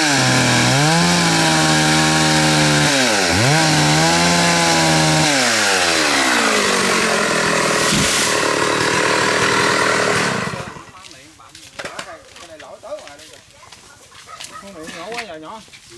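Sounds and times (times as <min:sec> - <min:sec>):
chainsaw cutting tree trunk: 0:00.0 - 0:11.0.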